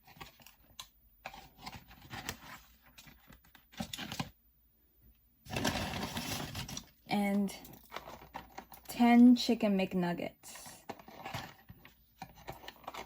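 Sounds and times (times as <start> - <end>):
paper packaging rustling and crinkling: 0.0 - 4.3, 5.5 - 7.0, 10.8 - 13.0.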